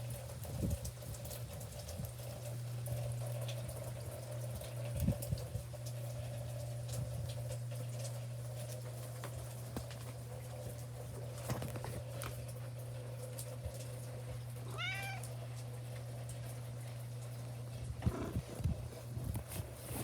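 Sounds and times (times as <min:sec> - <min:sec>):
steady low hum: 0:12.5 - 0:20.0
cat meowing: 0:14.6 - 0:15.4.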